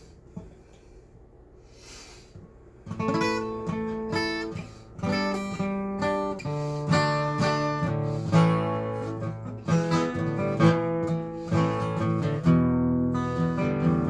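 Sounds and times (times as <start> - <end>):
acoustic guitar chords: 2.9 - 14.0.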